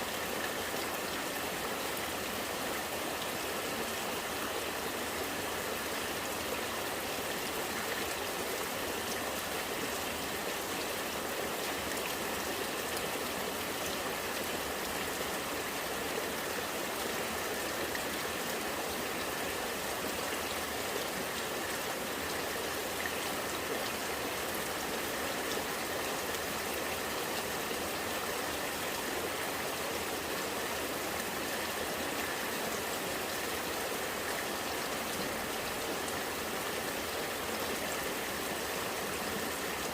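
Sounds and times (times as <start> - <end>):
rain falling: 0.0 - 39.9
rainwater running and gurgling: 0.0 - 39.9.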